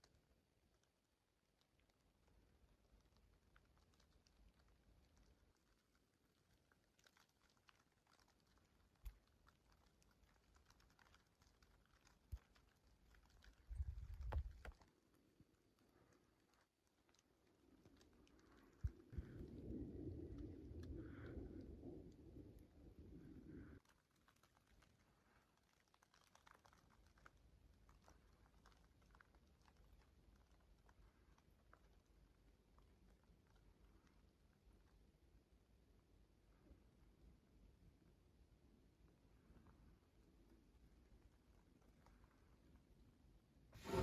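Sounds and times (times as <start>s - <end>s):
wood fire crackling: 0.0s - 34.0s, 43.8s - 44.0s.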